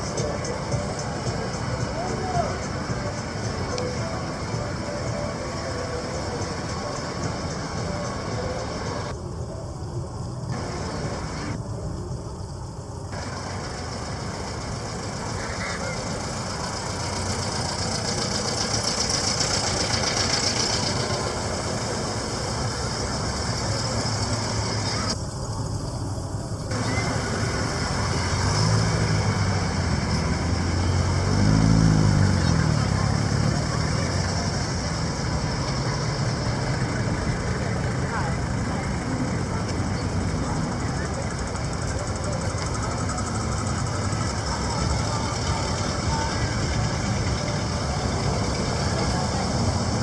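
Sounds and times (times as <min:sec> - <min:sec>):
cars driving slowly past: 0:00.0 - 0:50.0
car engine revving: 0:13.2 - 0:25.2, 0:26.7 - 0:50.0.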